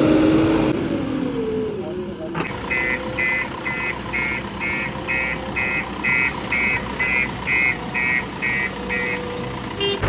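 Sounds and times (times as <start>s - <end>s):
diesel engine running: 0.0s - 10.0s
reversing alarm beeping: 2.5s - 10.0s.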